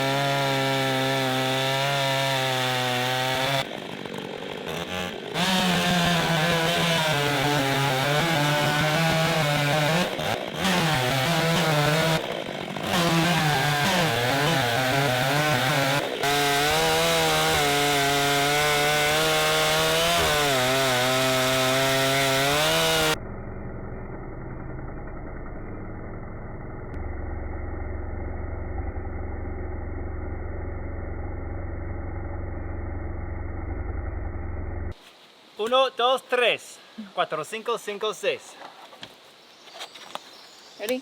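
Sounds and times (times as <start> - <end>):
chainsaw cutting wood: 0.0 - 23.2
muffled low engine hum: 23.1 - 35.0.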